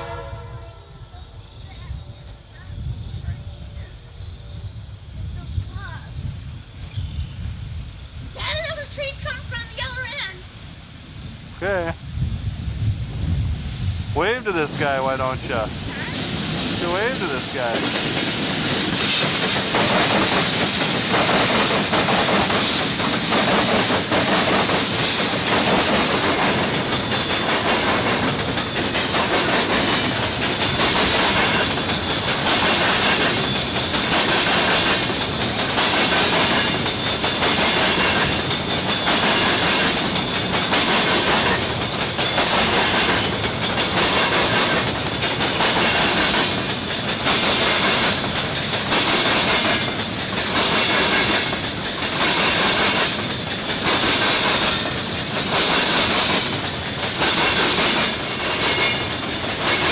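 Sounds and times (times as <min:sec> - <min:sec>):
hopper cars rolling past: 0:14.0 - 0:59.9
wheels clicking over rail joints: 0:16.3 - 0:59.9.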